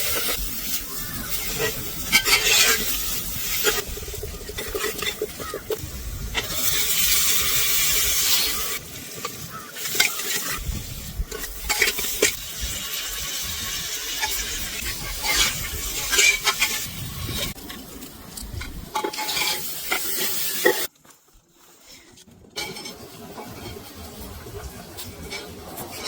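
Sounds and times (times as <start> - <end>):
vegetables sizzling in a pot: 0.0 - 18.0, 18.6 - 20.9
spoon scraping and knocking pot: 1.2 - 5.8.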